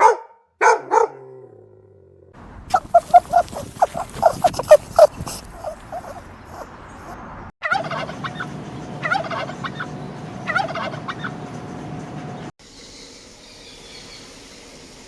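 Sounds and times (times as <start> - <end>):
dog barking: 0.0 - 1.6, 2.7 - 7.2
turkey gobbling: 2.6 - 11.4.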